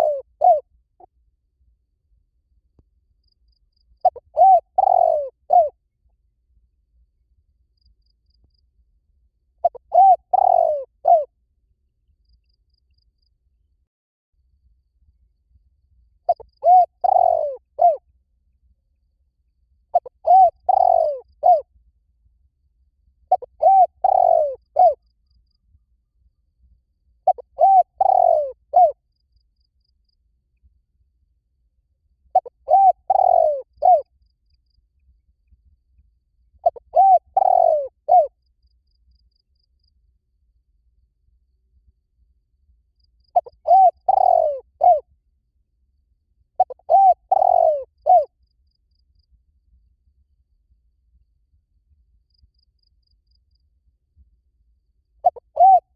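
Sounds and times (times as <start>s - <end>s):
dove cooing: 0.0s - 0.7s, 4.0s - 5.8s, 9.6s - 11.3s, 16.3s - 18.0s, 19.9s - 21.6s, 23.3s - 25.0s, 27.2s - 29.0s, 32.3s - 34.1s, 36.6s - 38.3s, 43.4s - 45.0s, 46.6s - 48.3s, 55.2s - 55.9s.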